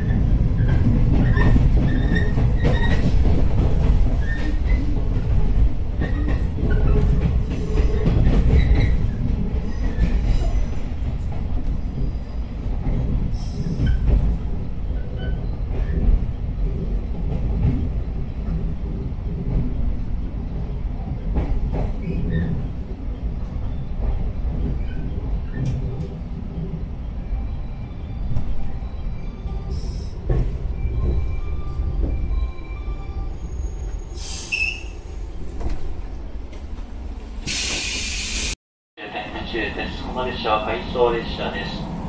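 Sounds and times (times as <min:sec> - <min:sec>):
train interior rumble: 0:00.0 - 0:42.0
faint wheel squeal: 0:33.3 - 0:35.0.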